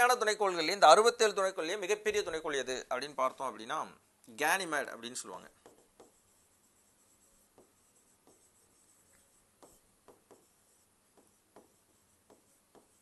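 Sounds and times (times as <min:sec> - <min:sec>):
pen writing on surface: 0:05.4 - 0:13.0.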